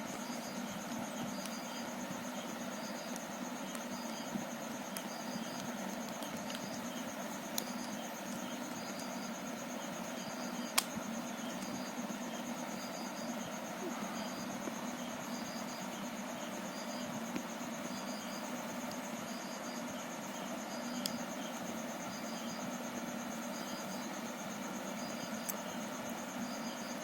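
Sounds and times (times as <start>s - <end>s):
high insect trill: 0.0s - 27.0s
sharp clicks: 10.7s - 11.0s.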